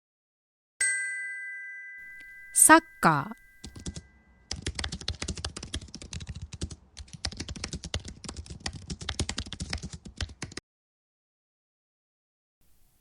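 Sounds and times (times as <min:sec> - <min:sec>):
rapid keyboard typing: 0:03.6 - 0:10.6.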